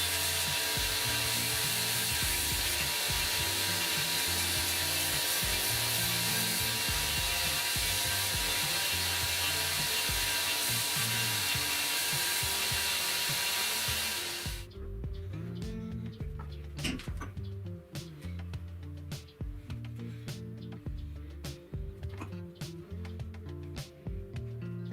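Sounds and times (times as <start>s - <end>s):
woodworking tool rasping wood: 0.0s - 14.6s
background music: 0.0s - 24.9s.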